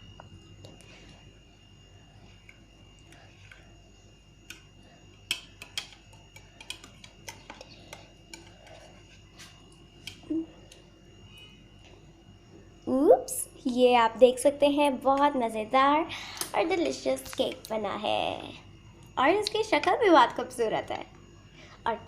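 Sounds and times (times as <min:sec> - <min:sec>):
faint high whine: 0:00.0 - 0:22.0
utensils tapping on dish: 0:05.3 - 0:08.8.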